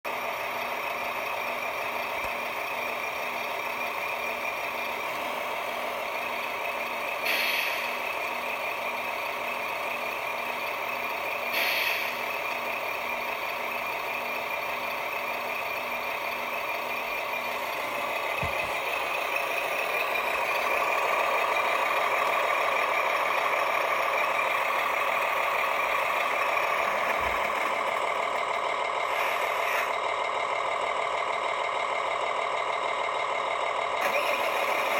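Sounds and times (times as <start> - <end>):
toy truck motor whirring: 0.4 - 32.4, 33.2 - 34.9.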